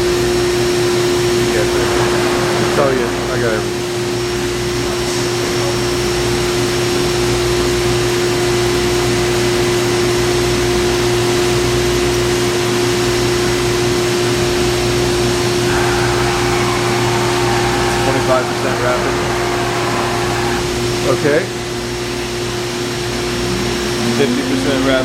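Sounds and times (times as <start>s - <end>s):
milling machine humming: 0.7s - 7.3s, 10.6s - 25.0s
steady mid-pitched tone: 1.2s - 5.4s, 15.4s - 21.3s
whirring: 1.3s - 5.0s, 15.1s - 21.6s.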